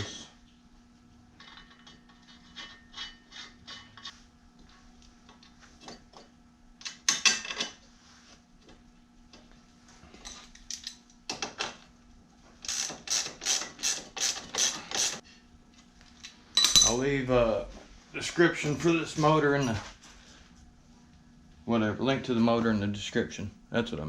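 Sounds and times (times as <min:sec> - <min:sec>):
ratchet wrench clicking: 0:12.7 - 0:15.2.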